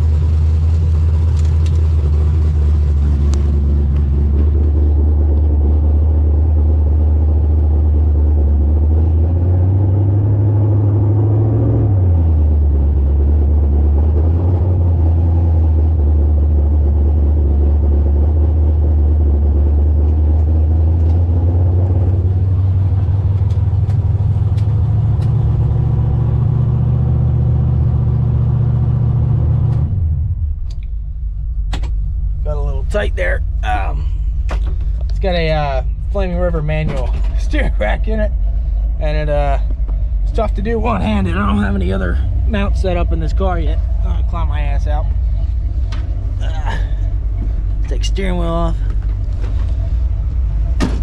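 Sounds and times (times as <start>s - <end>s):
car engine running: 0.0s - 51.0s.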